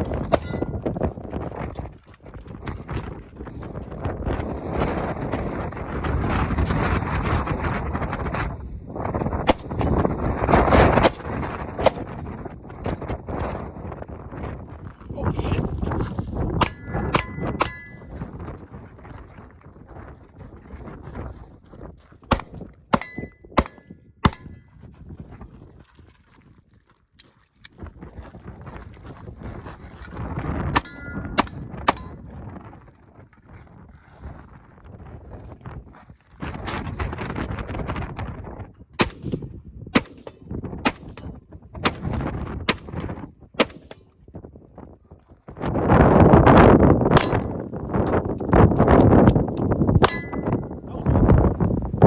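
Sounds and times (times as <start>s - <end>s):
gunshots: 0.0s - 0.8s, 9.5s - 10.0s, 10.9s - 12.2s, 22.3s - 24.6s, 30.8s - 32.2s, 39.0s - 43.0s, 43.6s - 44.0s
metallic ring of steel target: 0.0s - 1.0s, 16.6s - 18.4s, 22.3s - 24.6s, 30.8s - 32.4s, 47.1s - 48.2s, 50.0s - 50.8s
wind rumbling on microphone: 0.0s - 52.0s.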